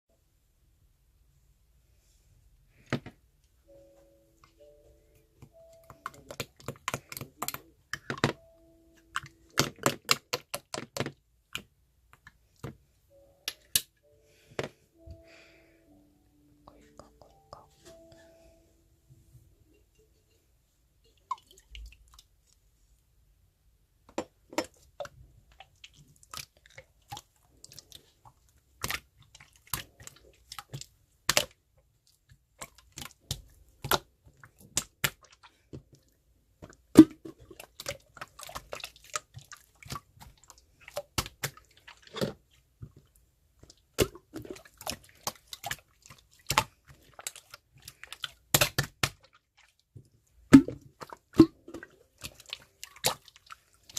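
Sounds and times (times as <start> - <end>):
slime squelching and popping: 5.4 - 8.4, 9.0 - 12.8, 24.2 - 53.9.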